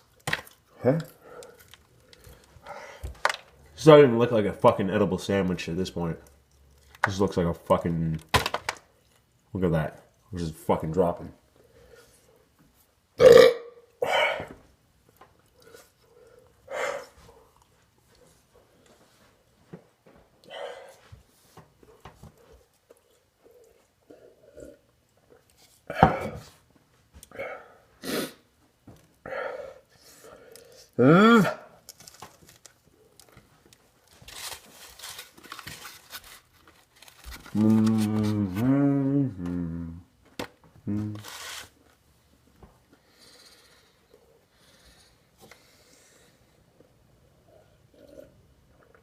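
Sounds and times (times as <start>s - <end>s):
food crinkling and chewing: 0.0s - 3.8s, 5.9s - 10.4s, 15.0s - 20.4s, 21.0s - 27.3s, 29.9s - 31.0s, 31.7s - 38.8s, 42.8s - 49.0s
man belching: 13.2s - 14.5s, 31.0s - 31.7s, 37.5s - 40.1s
man's low hummed groan: 37.6s - 40.1s.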